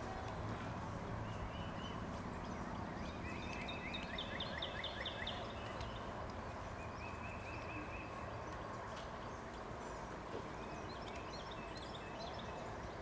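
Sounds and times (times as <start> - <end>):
outdoor background noise: 0.0 - 13.0
bird chirping: 1.1 - 13.0
bird trill: 1.3 - 6.1.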